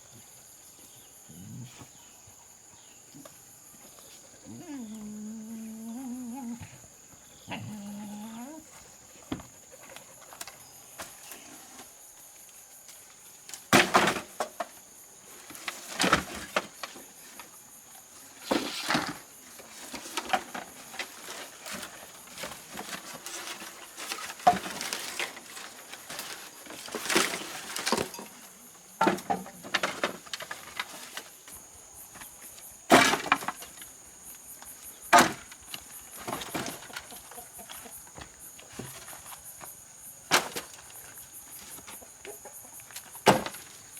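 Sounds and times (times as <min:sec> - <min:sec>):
sharp knocks and crunches: 0:37.8 - 0:42.1, 0:42.9 - 0:43.9.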